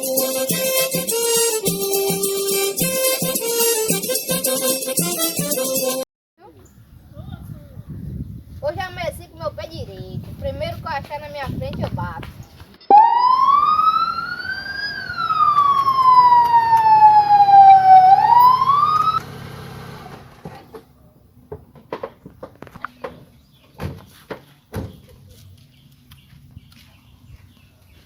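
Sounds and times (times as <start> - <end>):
police siren wailing: 12.9 - 19.2.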